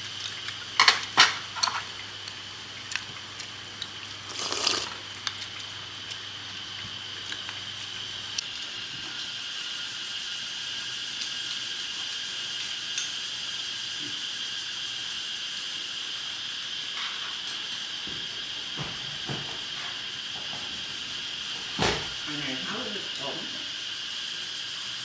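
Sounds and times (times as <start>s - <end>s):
insects droning in chorus: 0.0s - 25.0s.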